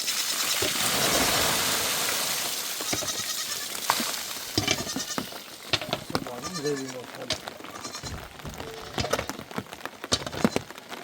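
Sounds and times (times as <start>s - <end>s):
steady rush of rain: 0.0s - 11.0s
goats and sheep bleating: 2.7s - 9.4s, 10.2s - 10.8s.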